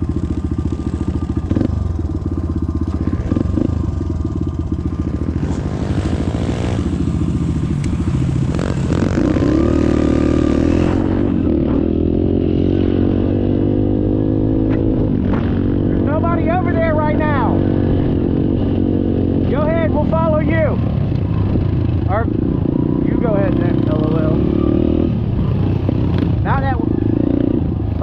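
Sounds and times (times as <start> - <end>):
dirt bike engine running: 0.0 - 28.0.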